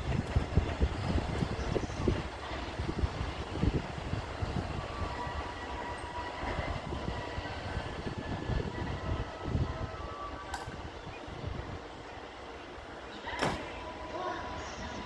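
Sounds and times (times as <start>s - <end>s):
freight train rumbling past: 0.0s - 15.0s
train wheels squealing: 3.8s - 15.0s.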